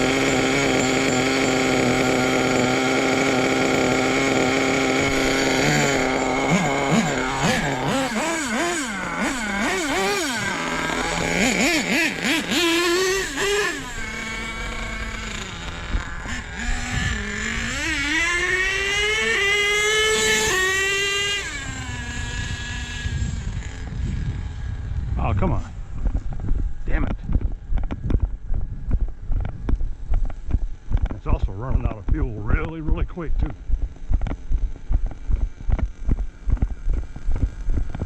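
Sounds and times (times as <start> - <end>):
small rc truck engine revving: 0.0 - 25.1.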